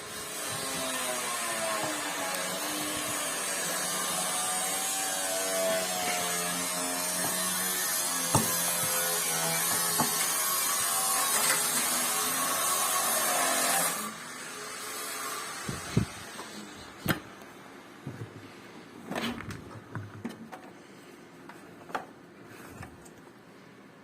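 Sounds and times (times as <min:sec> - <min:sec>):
sharp knocks: 0:08.3 - 0:09.1.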